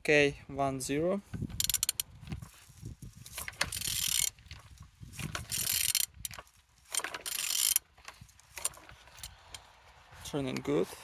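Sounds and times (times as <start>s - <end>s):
engine turned over with wrench: 1.3s - 9.8s.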